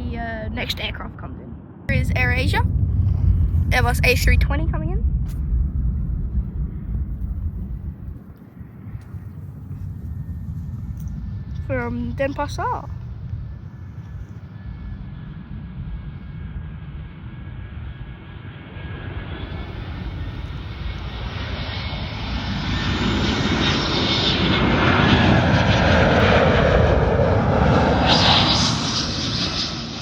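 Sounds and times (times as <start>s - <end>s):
jet airliner passing overhead: 0.0s - 30.0s.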